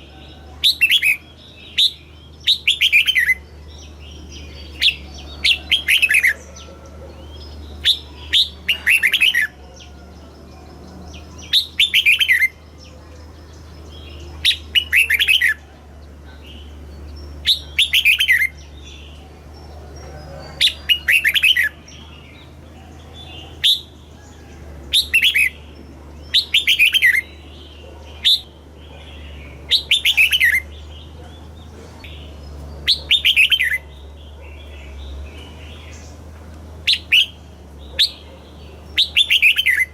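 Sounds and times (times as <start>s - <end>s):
steady low hum: 0.0s - 39.9s
bird singing bubbling phrases: 7.2s - 9.6s, 11.0s - 24.2s, 24.9s - 36.1s, 36.8s - 39.9s.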